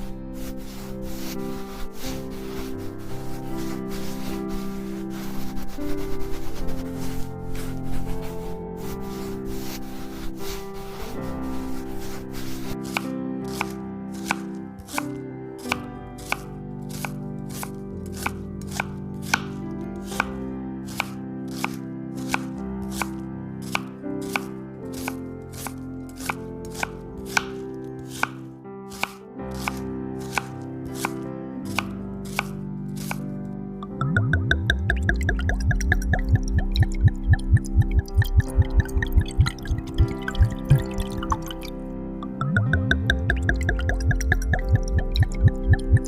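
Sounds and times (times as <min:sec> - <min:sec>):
soft background music: 0:00.0 - 0:46.0
knife chopping on cutting board: 0:12.8 - 0:20.3, 0:20.9 - 0:33.2.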